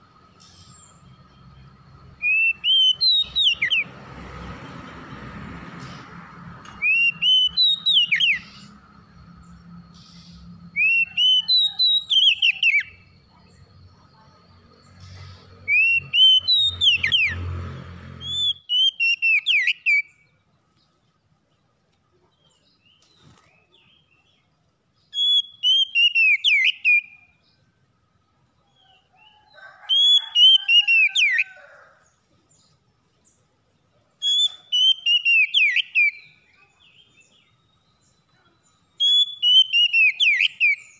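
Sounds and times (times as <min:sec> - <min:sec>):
bird singing whistled notes: 0:00.3 - 0:03.9, 0:06.7 - 0:17.4, 0:18.2 - 0:20.4, 0:22.4 - 0:29.4, 0:34.2 - 0:40.9.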